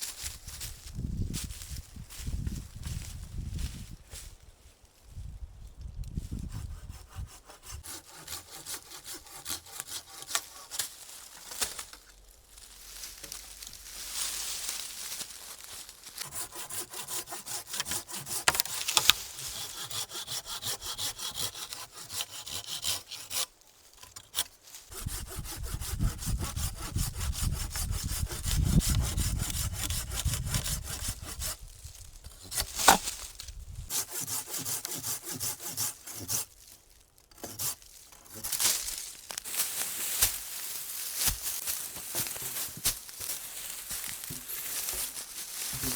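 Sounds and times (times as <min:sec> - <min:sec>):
hand saw cutting wood: 0:06.4 - 0:11.0, 0:15.7 - 0:33.3, 0:33.9 - 0:36.6, 0:37.3 - 0:38.8, 0:41.2 - 0:42.9, 0:44.0 - 0:45.9.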